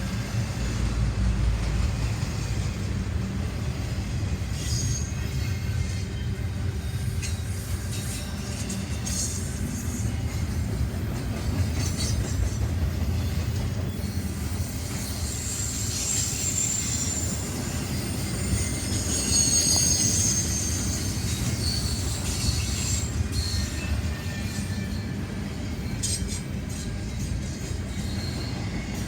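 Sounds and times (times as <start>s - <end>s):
train cars rumbling past: 0.0s - 29.0s
high-pitched wheel squeal: 13.9s - 25.1s.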